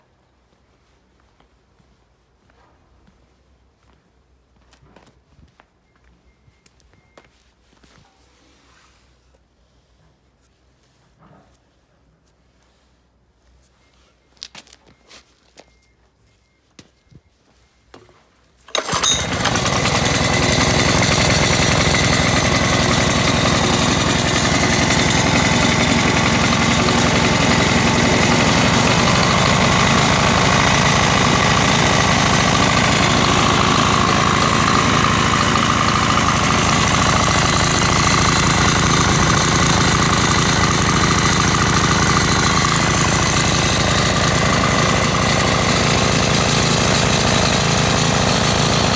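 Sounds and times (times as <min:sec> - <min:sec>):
small engine starting and running: 0:18.7 - 0:48.9.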